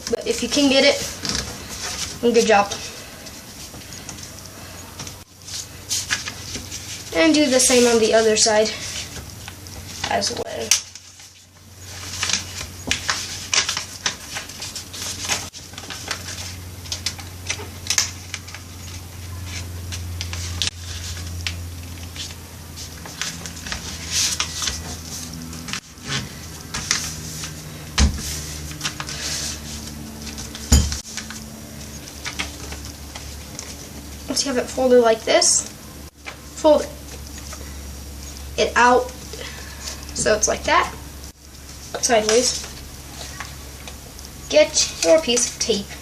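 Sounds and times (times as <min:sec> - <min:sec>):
steady low hum: 0:00.0 - 0:46.0
paper rustling and crinkling: 0:05.1 - 0:34.2.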